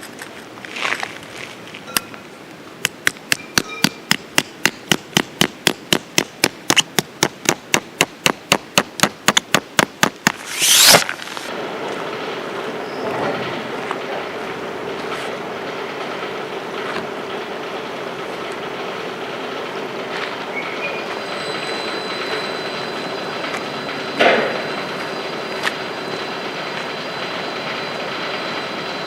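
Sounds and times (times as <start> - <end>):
hammer striking: 2.8 - 11.1
loud rushing sweep: 10.3 - 11.5.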